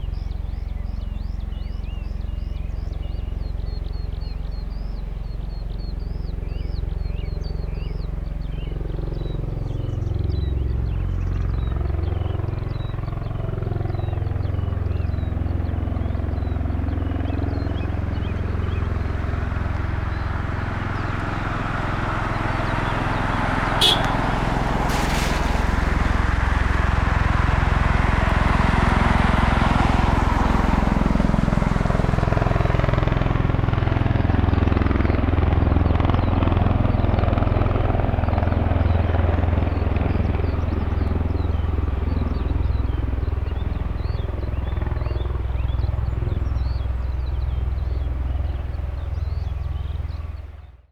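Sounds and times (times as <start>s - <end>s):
aircraft engines droning: 0.0s - 50.8s
birds chirping: 0.0s - 50.8s
higher rushing noise: 22.4s - 28.1s.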